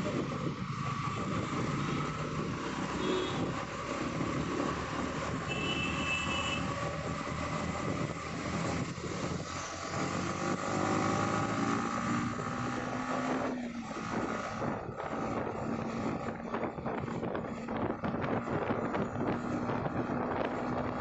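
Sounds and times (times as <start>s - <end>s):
road traffic noise: 0.0s - 21.0s
wind rush: 6.8s - 21.0s.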